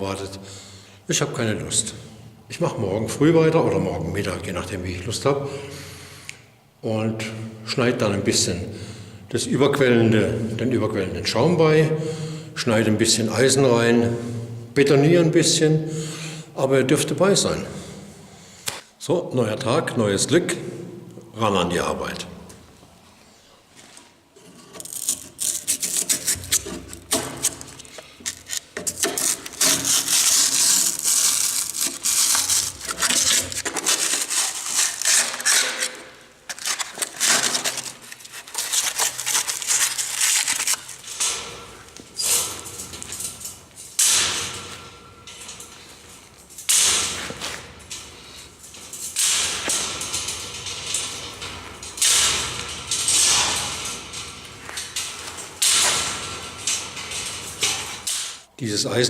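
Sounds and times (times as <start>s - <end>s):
scraping and crunching: 23.7s - 58.5s.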